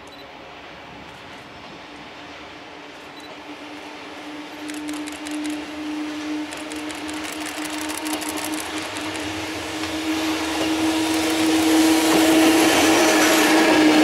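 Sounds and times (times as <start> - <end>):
locomotive whirring hum: 0.0 - 14.0
freight wagons rolling: 6.6 - 9.4.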